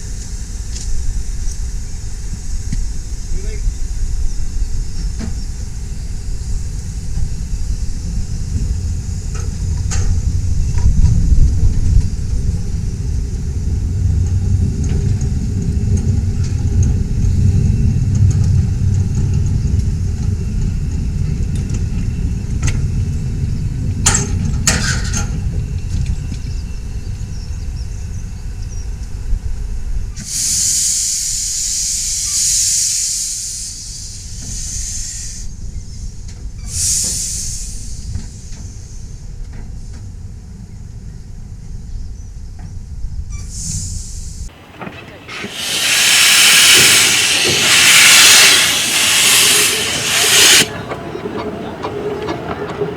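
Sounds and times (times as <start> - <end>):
steam train rumbling: 0.0 - 28.6, 29.2 - 40.3, 43.6 - 52.9
locomotive steam hissing: 30.2 - 35.7, 36.7 - 38.1, 43.6 - 52.9.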